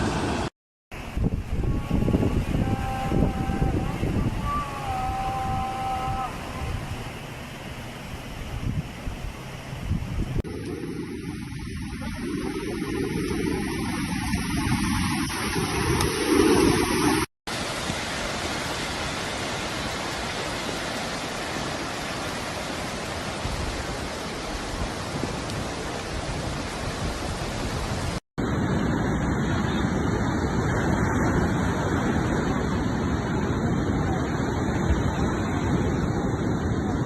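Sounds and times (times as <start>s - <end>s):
floodwater rushing: 0.0s - 28.2s.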